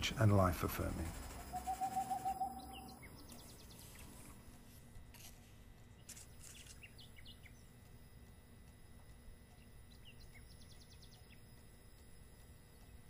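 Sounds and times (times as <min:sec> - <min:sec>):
faint bird chirps: 0:01.4 - 0:04.3, 0:09.5 - 0:13.0.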